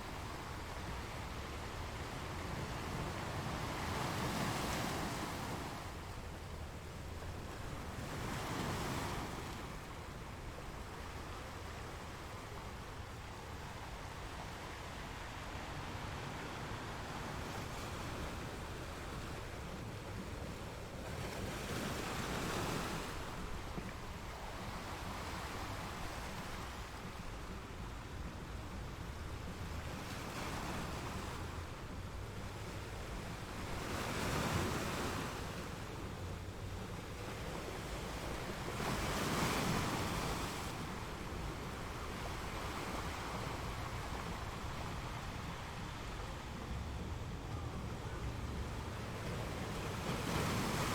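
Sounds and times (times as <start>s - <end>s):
ocean waves breaking: 0.0s - 50.9s.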